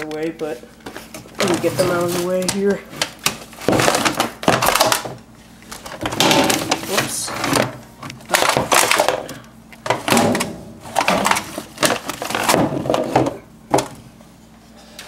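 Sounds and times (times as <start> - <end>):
broom handles knocking and clattering: 6.0 - 9.2.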